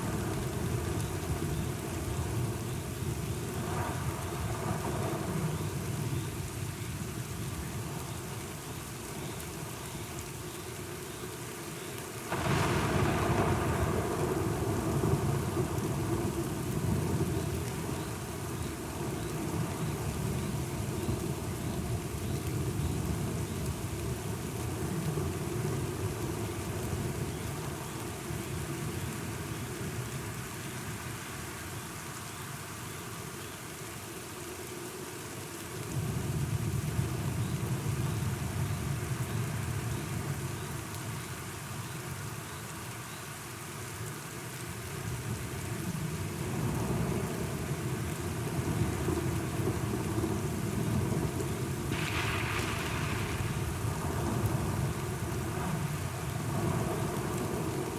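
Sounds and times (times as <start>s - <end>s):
steady rain: 0.0s - 57.9s
rolling thunder: 49.7s - 57.9s.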